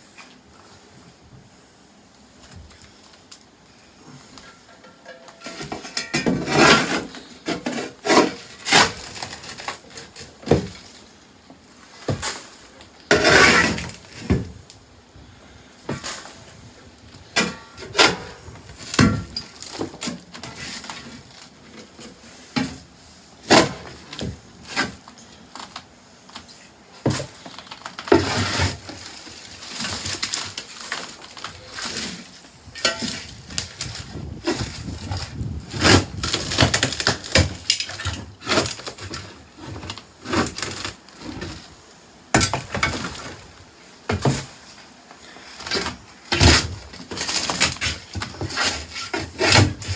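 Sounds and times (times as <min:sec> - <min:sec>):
wood scraping: 0:11.8 - 0:14.6
wood breaking and cracking: 0:45.7 - 0:49.9.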